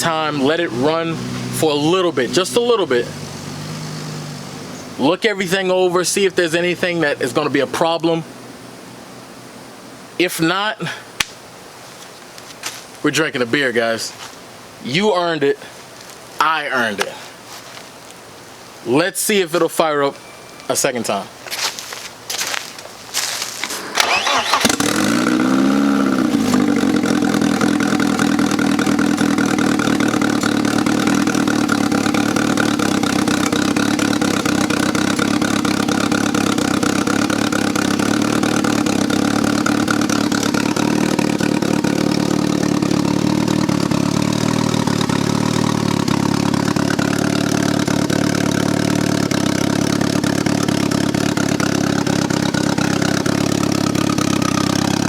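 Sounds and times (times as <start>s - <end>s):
car engine starting and idling: 0.0s - 9.6s, 23.6s - 55.0s.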